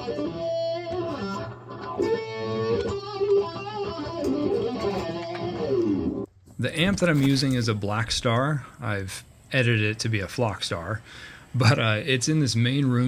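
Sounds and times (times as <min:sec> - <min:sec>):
electric guitar lead line: 0:00.0 - 0:06.3.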